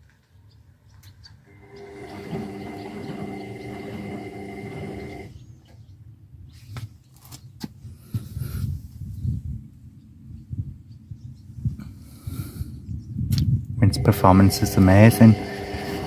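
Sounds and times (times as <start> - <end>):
washing machine drum whirring: 1.5 - 5.4, 13.8 - 16.0.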